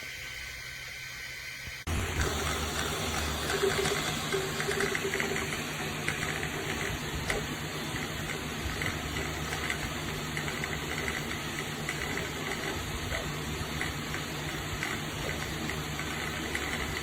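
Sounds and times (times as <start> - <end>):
blower fan whirring: 0.0 - 17.0.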